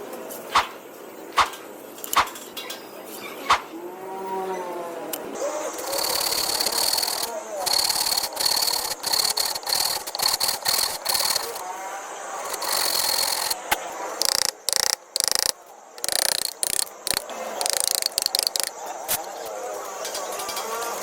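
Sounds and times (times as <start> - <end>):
rapid mechanical clicking: 5.7 - 11.6, 12.4 - 19.2
steady high whine: 5.7 - 18.7.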